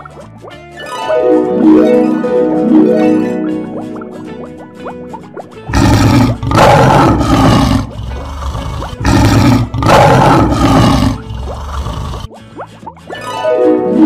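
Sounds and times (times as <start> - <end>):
lion roar: 5.7 - 12.3.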